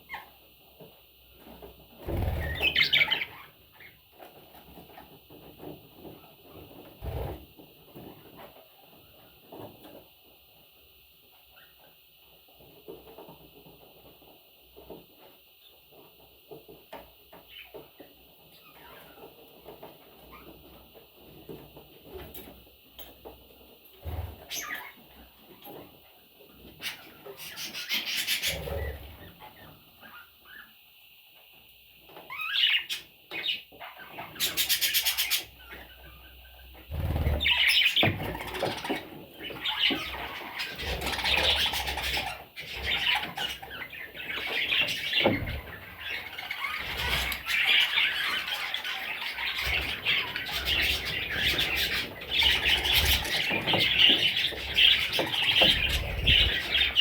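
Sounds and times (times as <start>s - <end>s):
budgerigar chicks chirping: 32.3s - 57.0s.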